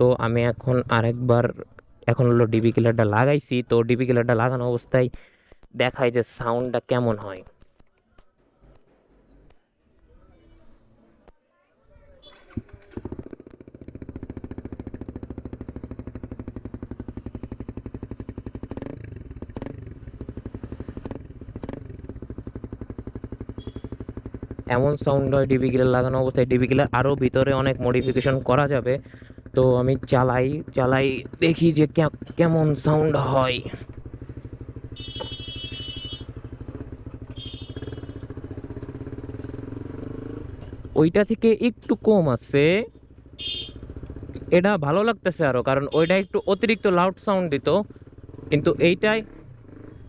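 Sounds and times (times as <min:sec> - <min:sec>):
motorcycle engine idling: 0:11.9 - 0:50.0.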